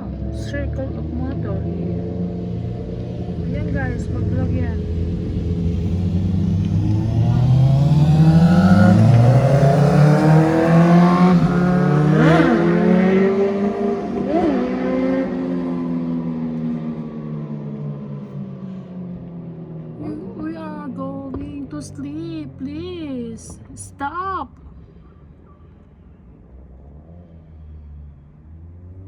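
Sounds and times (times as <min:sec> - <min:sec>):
motorcycle engines accelerating: 0:00.0 - 0:29.0
motorcycle throttle blips: 0:02.7 - 0:12.6.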